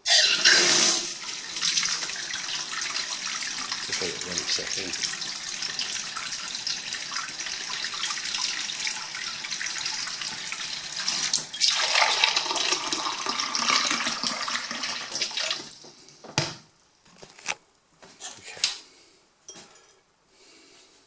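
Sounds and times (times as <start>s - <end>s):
water running from tap: 0.1s - 15.9s.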